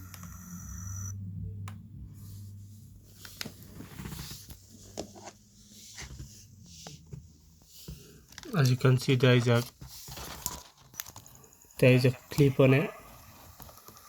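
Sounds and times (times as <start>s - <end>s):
steady low hum: 0.0s - 4.0s.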